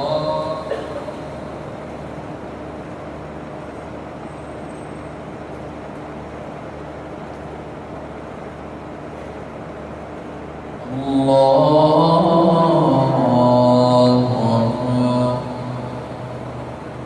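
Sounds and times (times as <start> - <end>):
chanted voice: 0.0 - 1.7, 10.8 - 17.0
room hum and hiss: 0.0 - 17.0.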